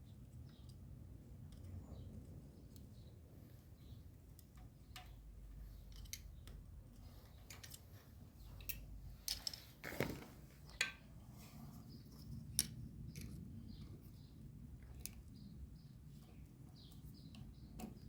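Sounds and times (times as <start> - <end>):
light handling clicks and clinks: 3.8 - 9.7, 12.1 - 14.0.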